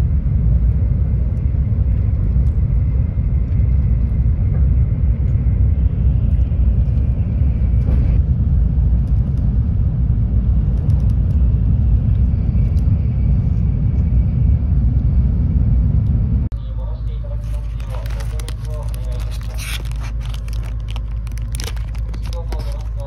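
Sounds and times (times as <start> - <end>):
train cabin rumble: 0.0 - 23.0.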